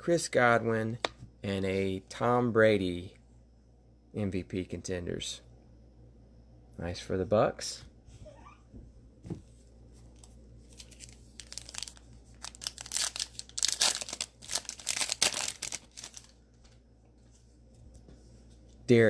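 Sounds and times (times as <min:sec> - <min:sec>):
cellophane tearing and crinkling: 0:10.7 - 0:16.4.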